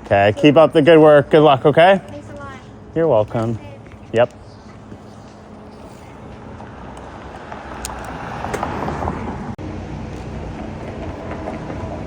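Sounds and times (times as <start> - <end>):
street traffic rumble: 0.0 - 12.0
vehicle passing: 0.0 - 12.0.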